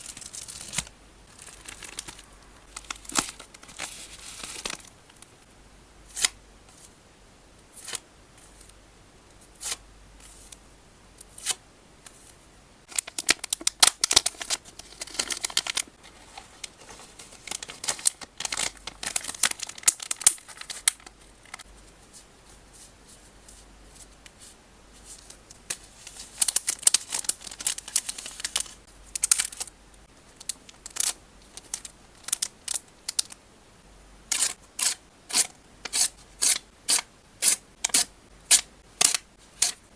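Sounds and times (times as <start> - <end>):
plastic packaging crinkling: 0.0 - 4.9, 12.9 - 21.6, 26.1 - 29.7
low steady hum: 0.0 - 39.9.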